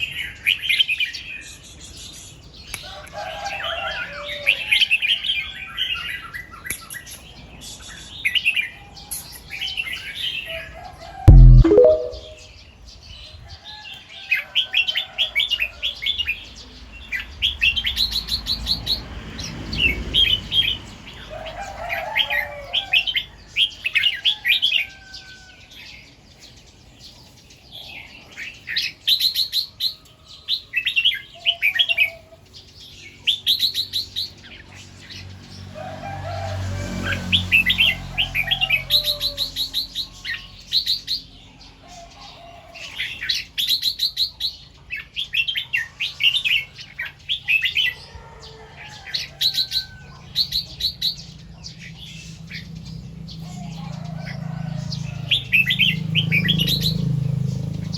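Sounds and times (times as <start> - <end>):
bird chirping song: 11.3 - 12.5.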